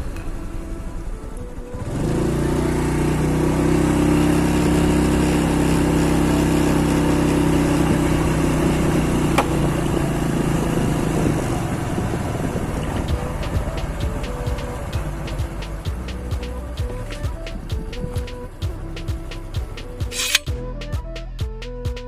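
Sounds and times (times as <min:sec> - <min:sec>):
engine idling: 0:05.0 - 0:20.9
sharp click: 0:20.1 - 0:20.5.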